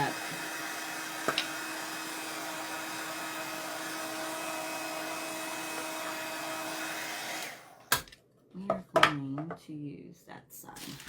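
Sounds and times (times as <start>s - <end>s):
hot-air dryer whirring: 0.0s - 8.1s.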